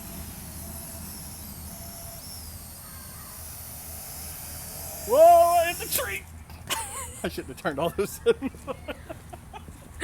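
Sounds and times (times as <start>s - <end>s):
faint high whine: 0.0s - 6.3s
quadcopter rotors humming: 0.0s - 10.0s.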